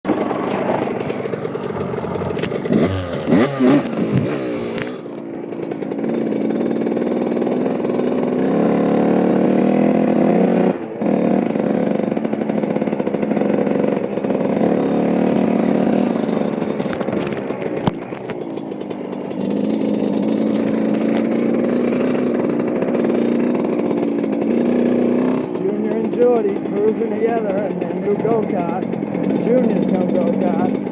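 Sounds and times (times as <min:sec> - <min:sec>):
small engines revving: 0:00.1 - 0:30.9.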